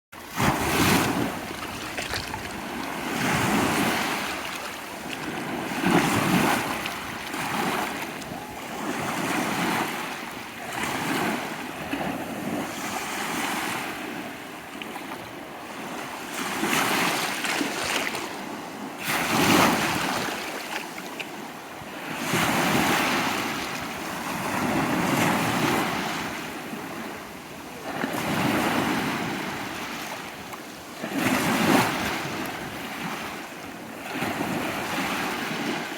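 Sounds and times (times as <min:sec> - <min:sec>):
waves breaking on shore: 0:00.2 - 0:35.9.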